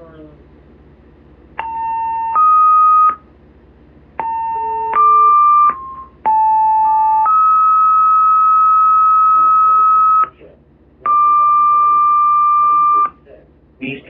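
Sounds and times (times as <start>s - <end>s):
two-tone paging tones over radio: 11.1s - 13.2s.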